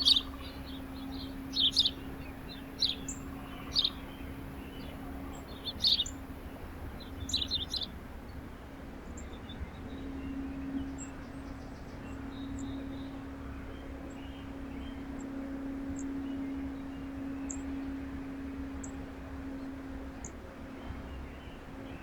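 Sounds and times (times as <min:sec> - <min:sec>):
small songbirds chirping: 0:00.0 - 0:08.4.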